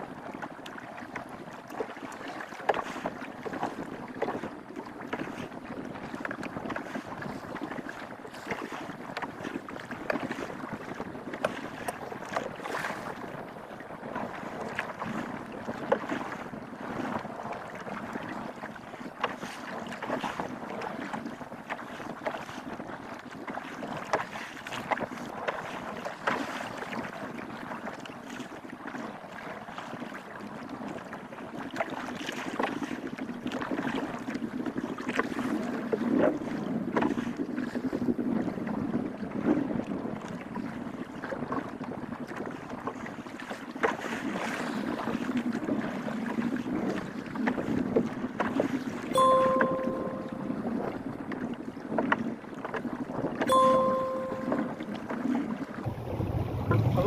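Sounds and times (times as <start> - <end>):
sea water around canoe: 0.0 - 57.0
wind buffeting microphone: 33.0 - 49.2, 54.8 - 57.0.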